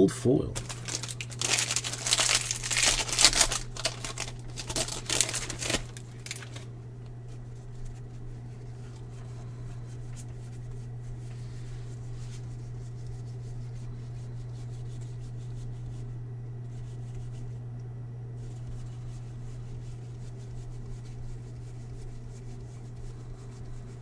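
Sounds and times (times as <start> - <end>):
steady low hum: 0.0 - 24.0
cards rubbing and ticking: 0.6 - 6.7.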